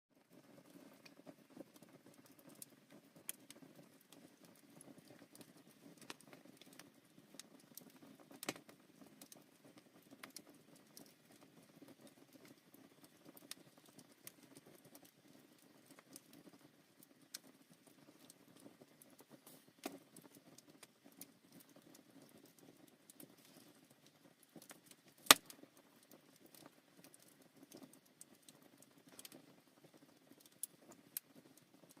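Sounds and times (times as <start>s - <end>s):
fire rumbling and crackling: 0.2s - 32.0s
loud pop of burning wood: 25.2s - 25.5s.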